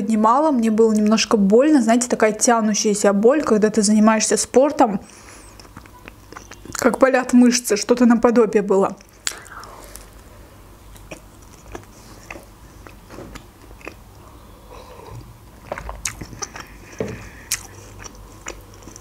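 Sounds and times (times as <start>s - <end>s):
chewing and biting food: 5.4s - 6.9s, 10.9s - 19.0s
mouth clicks and smacks: 9.0s - 10.2s, 10.9s - 14.0s, 15.1s - 19.0s.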